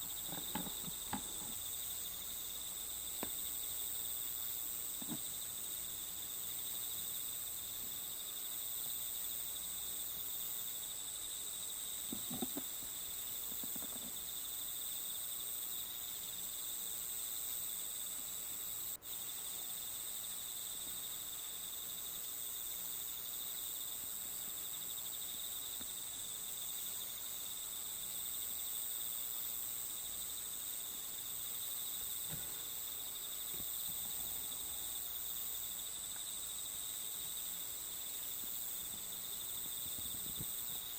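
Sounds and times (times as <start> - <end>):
insects chirring: 0.0 - 40.9
faint taps: 0.3 - 1.6.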